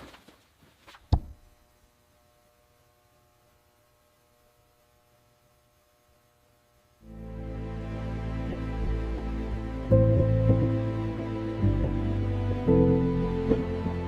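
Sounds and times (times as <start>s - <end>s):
faint electrical hum: 0.0s - 14.0s
background music: 7.0s - 14.0s.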